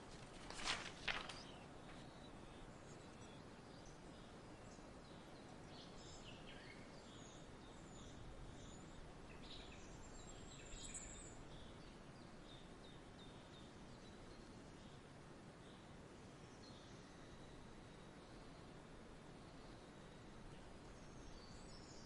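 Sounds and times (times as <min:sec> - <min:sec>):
small birds chirping: 0:00.0 - 0:15.9
low background hiss: 0:00.0 - 0:22.0.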